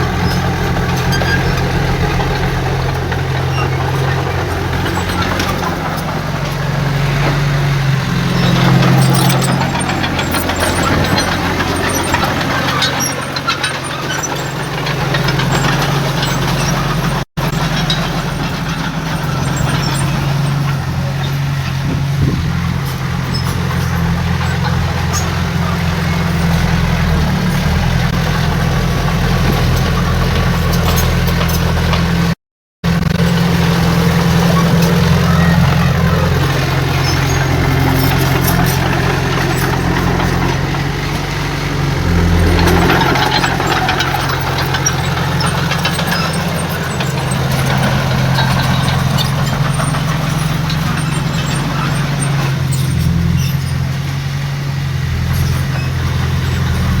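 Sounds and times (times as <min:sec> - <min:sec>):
rough rush of noise: 0:00.0 - 0:12.8
heavy machinery engine drone: 0:00.0 - 0:57.0.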